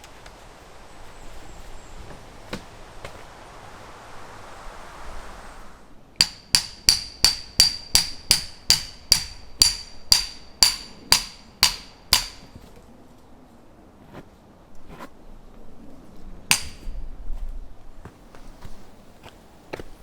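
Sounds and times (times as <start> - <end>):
hammer striking steel tent peg: 6.2 - 12.6, 16.5 - 17.0.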